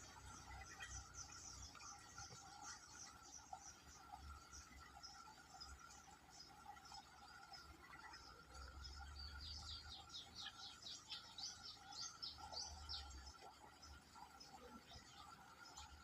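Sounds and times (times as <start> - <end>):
small bird chirping: 0.0 - 6.5, 7.5 - 13.3.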